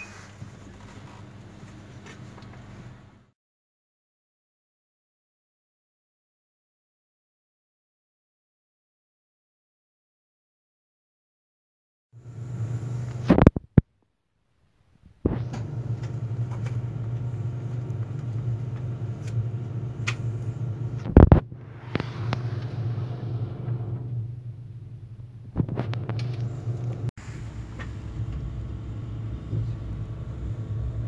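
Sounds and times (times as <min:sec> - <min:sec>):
electric train carriage hum: 0:00.0 - 0:03.3, 0:12.2 - 0:13.3, 0:15.3 - 0:31.0.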